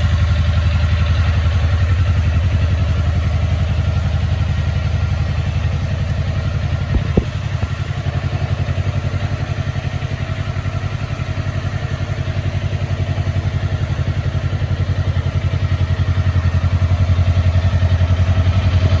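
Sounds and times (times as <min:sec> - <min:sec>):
motorcycle engine idling: 0:00.0 - 0:19.0
short knocks: 0:06.9 - 0:07.8.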